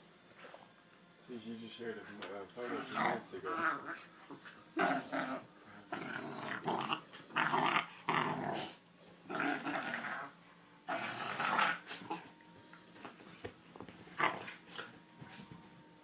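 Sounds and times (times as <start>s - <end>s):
puppies growling: 2.6s - 12.4s, 14.1s - 14.9s.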